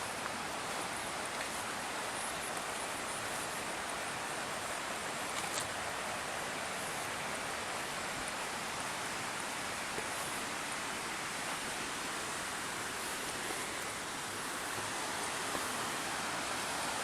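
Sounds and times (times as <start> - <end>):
water rushing along canal: 0.0 - 17.0.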